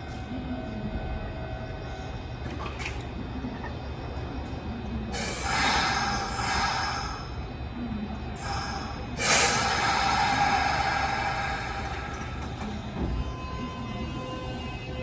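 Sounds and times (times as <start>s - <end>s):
electric train rumbling: 0.0s - 15.0s
air hissing bursts: 5.2s - 7.4s, 8.4s - 12.5s.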